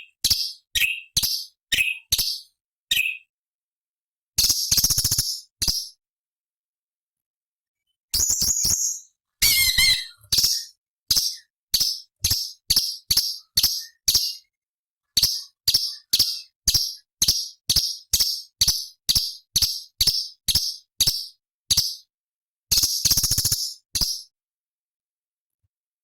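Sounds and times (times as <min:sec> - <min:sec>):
bird warbling and chipping: 0:08.2 - 0:14.5, 0:15.2 - 0:22.0.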